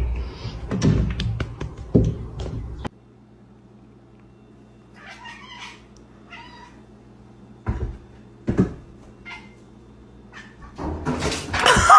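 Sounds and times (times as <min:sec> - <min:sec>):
cat meowing faintly: 0:05.0 - 0:06.8.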